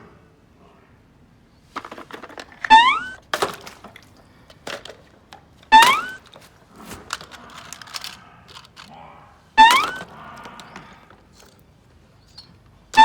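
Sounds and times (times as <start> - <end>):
toys knocking and clicking: 1.8 - 9.0, 9.6 - 11.6, 12.3 - 13.0.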